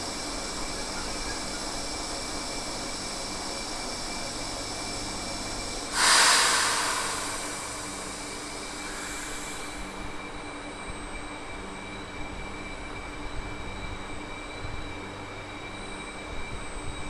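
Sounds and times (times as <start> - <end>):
train equipment humming: 0.0 - 11.7
sudden loud hiss: 2.3 - 10.5.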